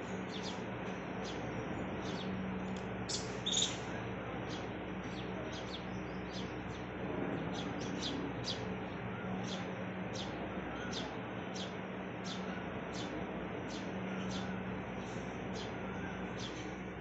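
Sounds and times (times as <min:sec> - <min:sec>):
small birds chirping: 0:00.0 - 0:17.0
steady low hum: 0:00.0 - 0:17.0.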